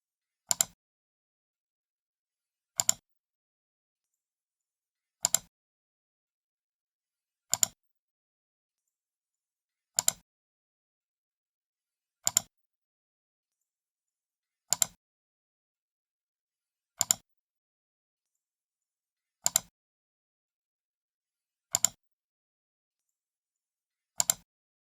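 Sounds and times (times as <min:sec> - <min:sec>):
computer mouse button clicks: 0:02.8 - 0:03.0, 0:21.7 - 0:22.0, 0:24.2 - 0:24.4.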